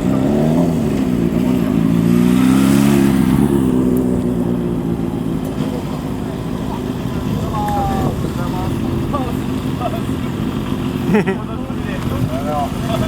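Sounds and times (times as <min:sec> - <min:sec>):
motorcycle engine passing by: 0:00.0 - 0:06.0.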